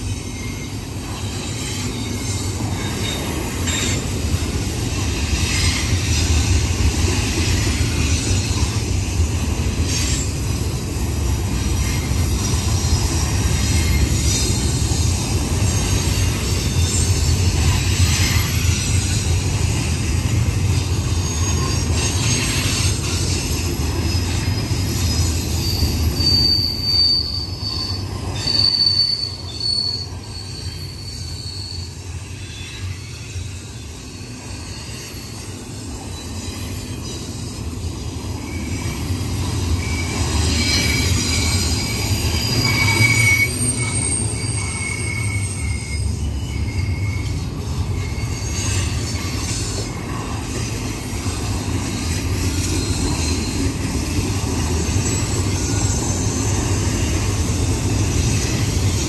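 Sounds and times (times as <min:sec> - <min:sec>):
freight train wheels rumbling: 0:00.0 - 0:59.0
high wheel squeal: 0:00.0 - 0:59.0.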